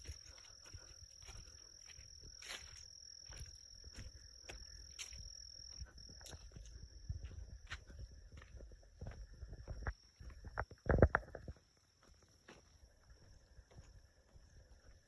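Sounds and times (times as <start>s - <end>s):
footsteps: 0.0s - 15.0s
high-pitched insect trill: 0.0s - 15.0s.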